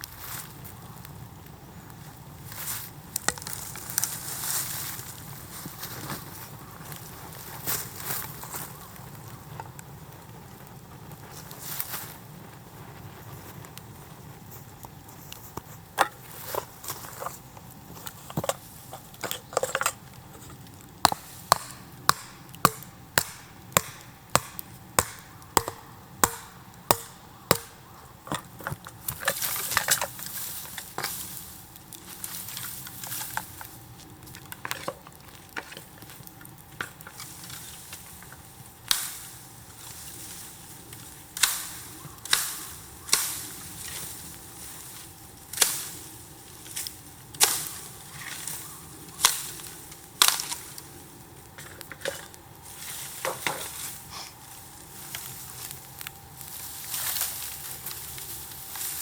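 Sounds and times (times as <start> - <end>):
blade chopping bamboo: 21.0 - 30.0.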